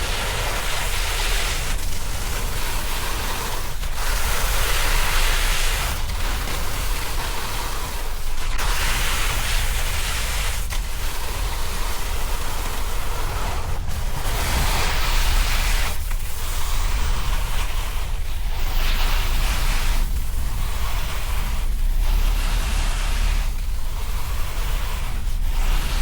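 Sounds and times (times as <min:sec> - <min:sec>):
snowboard sliding on snow: 0:00.0 - 0:26.0
wind buffeting microphone: 0:11.3 - 0:26.0.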